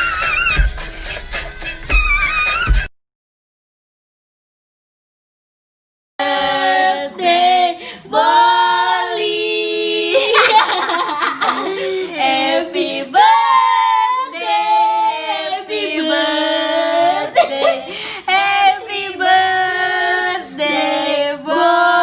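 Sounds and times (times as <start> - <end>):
people singing unaccompanied: 6.2 - 22.0.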